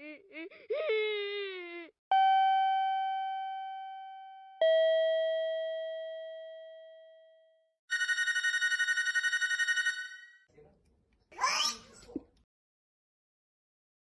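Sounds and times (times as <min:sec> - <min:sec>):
telephone bell ringing: 0:07.9 - 0:10.4.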